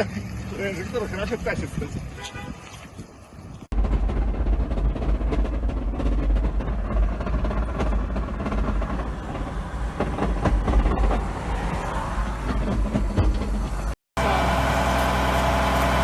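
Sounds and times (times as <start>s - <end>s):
vehicle low rumble: 0.0s - 16.0s
vehicle rattle: 3.6s - 14.0s.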